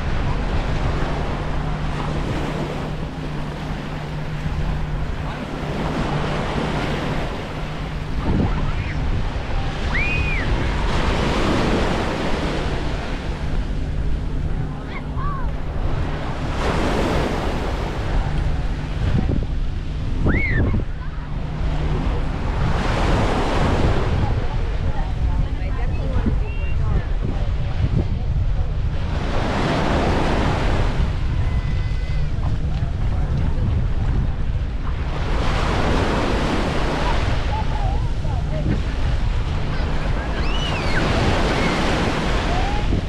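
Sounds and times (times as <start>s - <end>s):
small waves breaking on beach: 0.0s - 13.5s, 29.0s - 43.0s
wind buffeting microphone: 0.0s - 43.0s.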